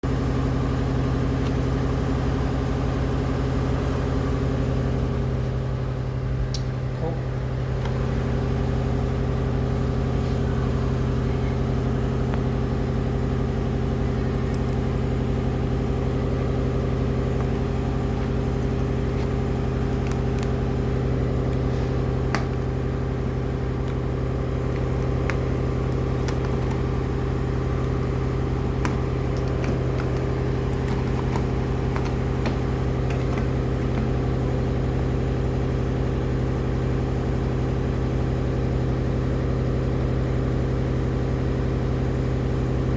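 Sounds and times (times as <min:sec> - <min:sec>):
machine humming: 0:04.9 - 0:37.0.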